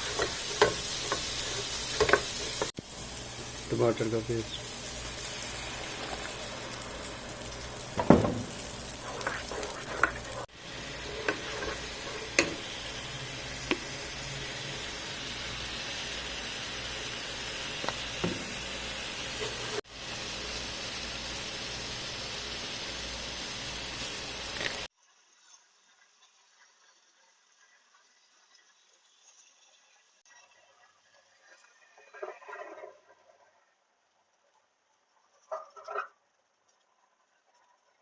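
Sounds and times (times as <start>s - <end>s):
stirring knocks in a pan: 0.0s - 2.7s, 7.6s - 12.7s, 17.8s - 18.6s
paste sizzling in a pan: 0.0s - 32.1s.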